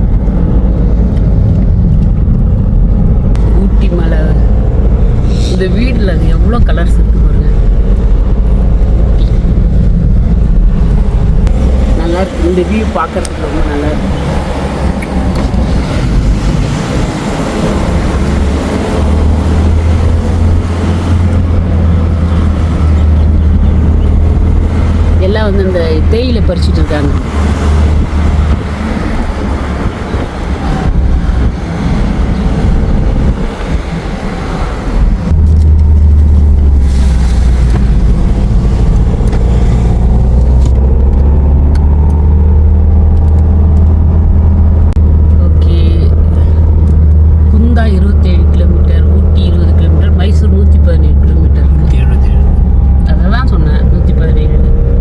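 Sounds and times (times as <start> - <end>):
car engine and road rumble: 0.0 - 55.0
wind buffeting microphone: 0.0 - 55.0.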